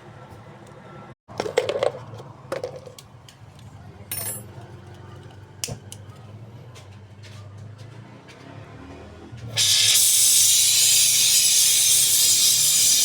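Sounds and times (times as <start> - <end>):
metallic clinks and knocks: 4.1 - 4.6
short hiss: 9.6 - 13.0.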